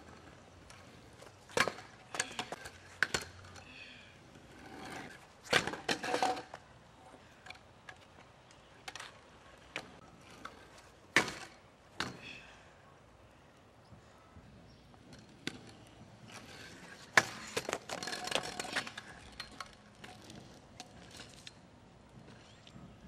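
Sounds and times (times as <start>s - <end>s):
scooter clattering on ground: 0.0s - 3.7s, 4.7s - 6.6s, 7.4s - 12.4s, 15.0s - 21.6s.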